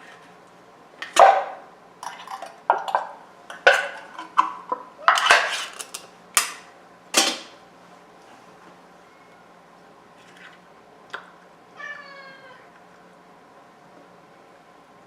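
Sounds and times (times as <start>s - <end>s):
hard objects clattering: 1.0s - 7.6s.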